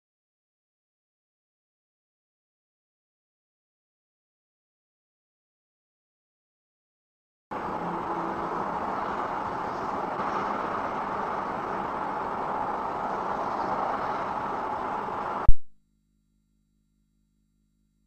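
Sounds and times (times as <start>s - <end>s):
vehicle road and engine noise: 7.5s - 15.6s.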